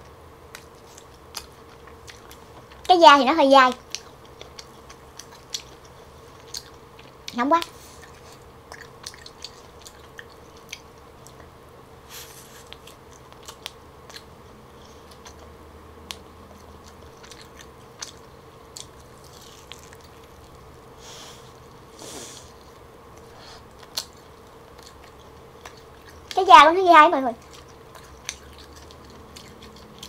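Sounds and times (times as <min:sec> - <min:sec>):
faint steady hum: 0:00.0 - 0:30.0
person biting and chewing: 0:03.9 - 0:07.2, 0:07.9 - 0:11.5, 0:12.5 - 0:14.3, 0:16.1 - 0:20.6, 0:27.4 - 0:30.0.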